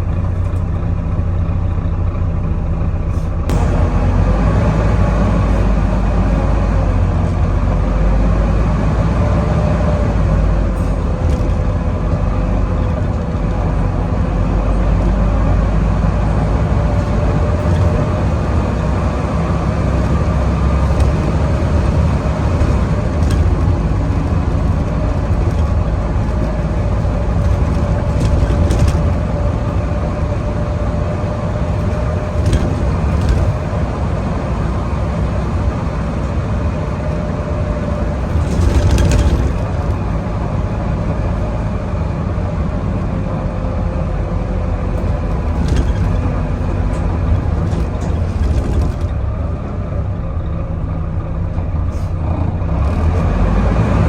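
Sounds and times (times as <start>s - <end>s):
bus engine rumble: 0.0s - 54.0s.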